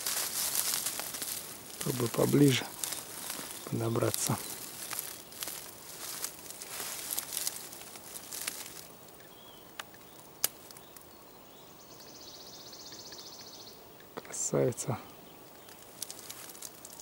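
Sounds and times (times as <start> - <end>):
footsteps rustling through dry leaves: 0.0 - 9.1, 15.5 - 17.0.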